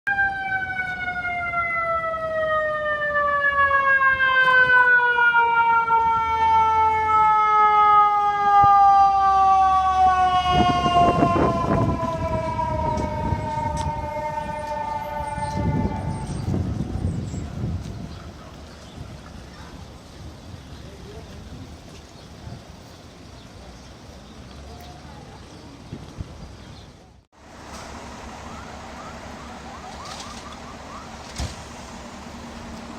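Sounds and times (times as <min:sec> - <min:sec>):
siren falling tone: 0:00.1 - 0:17.7, 0:28.3 - 0:31.2
low rumbling noise: 0:08.0 - 0:24.2.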